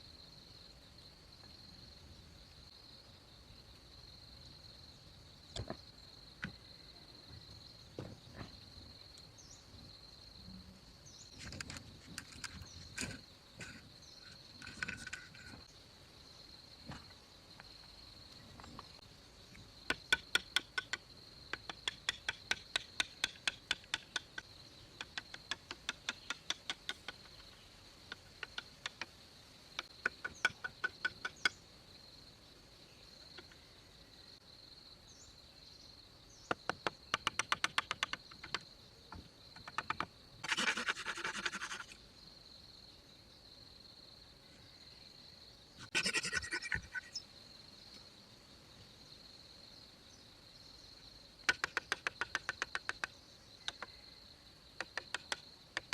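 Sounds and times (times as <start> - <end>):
high insect drone: 0.0 - 55.9
short scraping noises: 11.4 - 15.7, 40.4 - 42.0.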